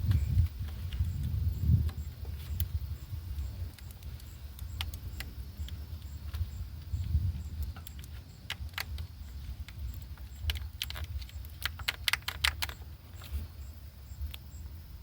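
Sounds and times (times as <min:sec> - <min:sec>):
steady low rumble: 0:00.0 - 0:11.6.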